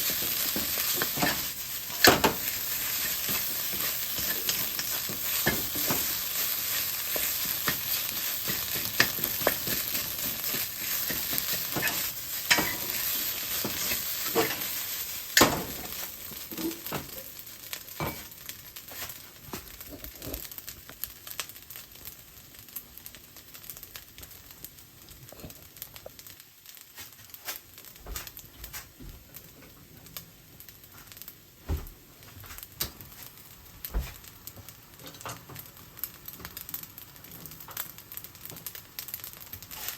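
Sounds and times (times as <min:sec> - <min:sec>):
utensil scraping a pan: 0:00.0 - 0:14.8
oil sizzling in a pan: 0:00.0 - 0:39.9.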